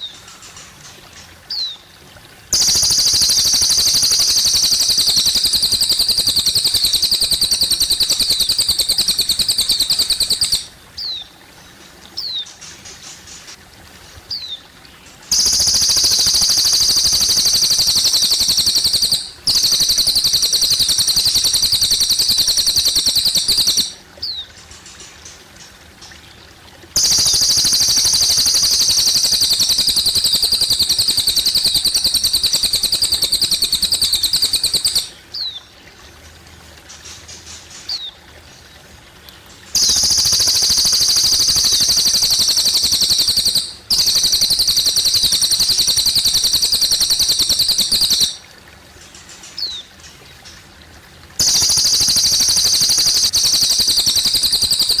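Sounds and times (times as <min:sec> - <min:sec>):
water trickling: 0:00.0 - 0:55.0
bird trilling: 0:02.6 - 0:11.2, 0:15.3 - 0:24.4, 0:27.0 - 0:35.6, 0:39.8 - 0:48.4, 0:51.4 - 0:55.0.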